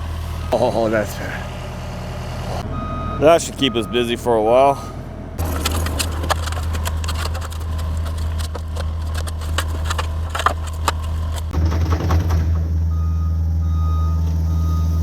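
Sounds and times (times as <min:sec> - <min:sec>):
diesel engine running: 0:00.0 - 0:15.0
machine clanking and knocking: 0:05.4 - 0:12.8.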